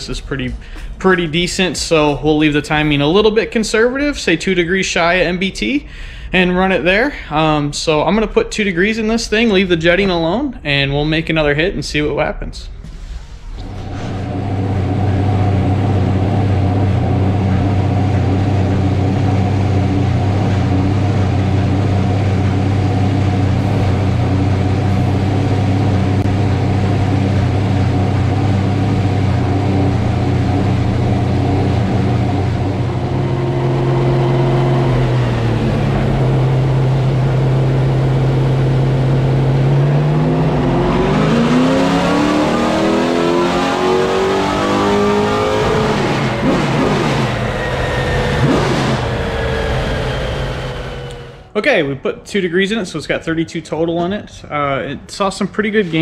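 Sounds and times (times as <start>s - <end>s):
race car engine idling and revving: 13.5s - 51.5s.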